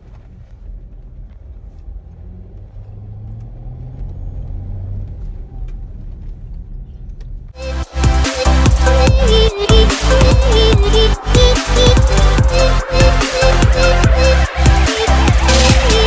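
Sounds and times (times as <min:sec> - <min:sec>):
car engine and road rumble: 0:00.0 - 0:16.0
electronic music: 0:07.6 - 0:16.0.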